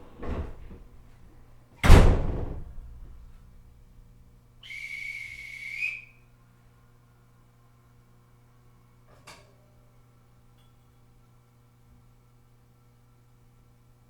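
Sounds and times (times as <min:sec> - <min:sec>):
train door thud: 0:00.0 - 0:01.0, 0:01.8 - 0:03.8
whistle blast: 0:04.6 - 0:06.2.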